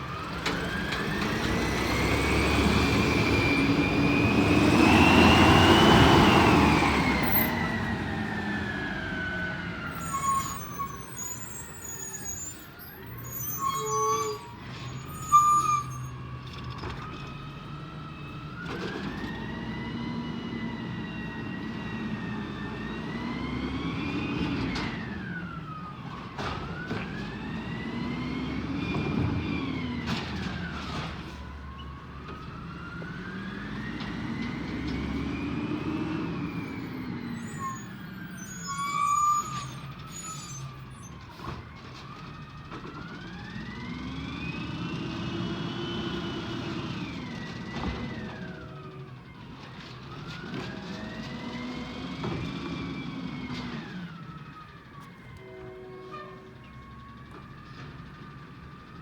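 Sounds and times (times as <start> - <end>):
garbage truck engine revving: 0.0 - 10.0.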